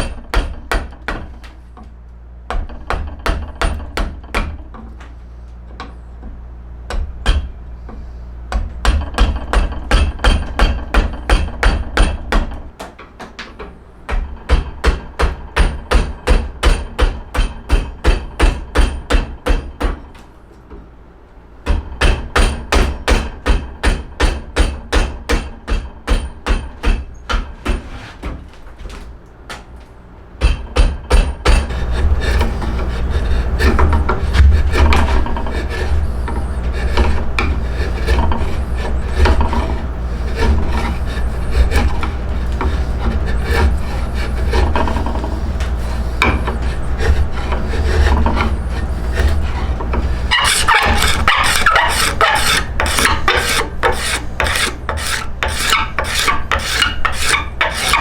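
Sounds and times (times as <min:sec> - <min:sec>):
hammer blows: 0:30.4 - 0:58.0.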